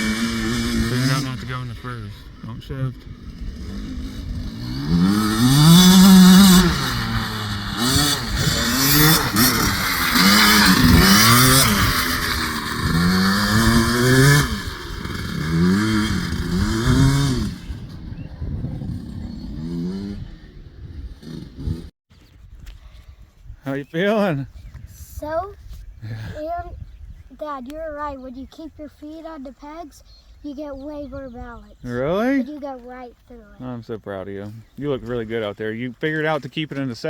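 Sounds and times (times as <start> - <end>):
dirt bike engine revving: 0.0 - 21.9.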